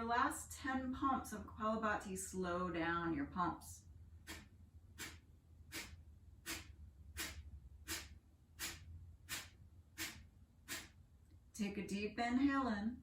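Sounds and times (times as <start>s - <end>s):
sharp exhales through nose: 4.3s - 11.0s.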